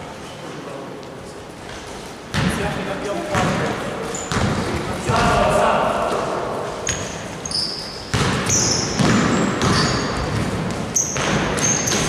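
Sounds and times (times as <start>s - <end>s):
basketball court noise: 1.6s - 12.0s
sneakers squeaking on floor: 3.3s - 5.4s, 6.7s - 12.0s
basketball thud: 8.1s - 11.6s.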